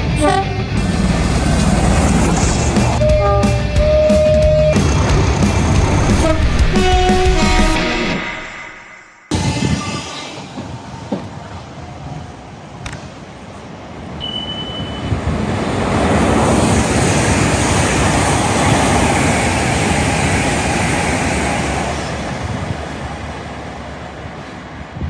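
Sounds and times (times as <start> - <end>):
train passing: 0.0 - 25.0
brief high tone: 3.0 - 4.8, 14.2 - 15.1.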